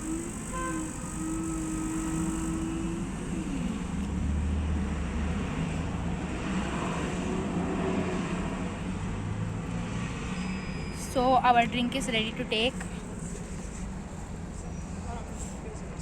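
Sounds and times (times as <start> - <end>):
vending machine motor whine: 0.0 - 4.6
low hum: 0.0 - 6.4.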